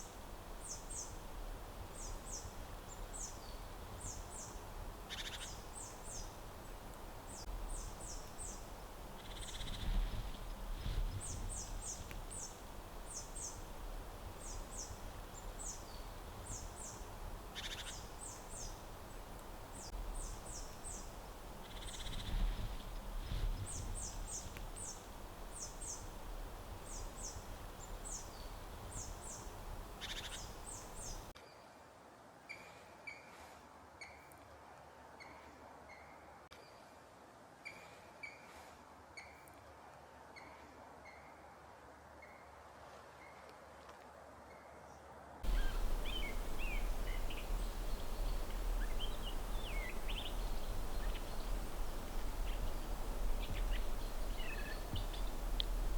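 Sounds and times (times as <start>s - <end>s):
steady background hiss: 0.0s - 32.6s, 38.5s - 55.9s
low rumbling: 45.5s - 55.9s.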